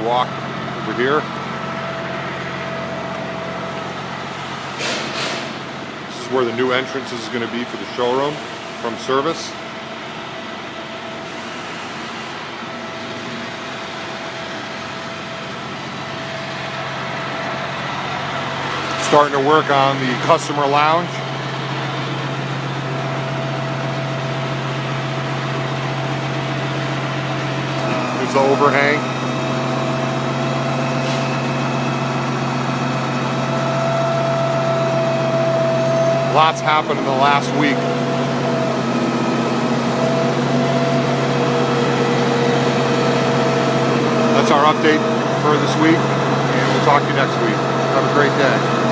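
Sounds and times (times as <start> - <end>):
machinery drone with whine: 0.0 - 48.9.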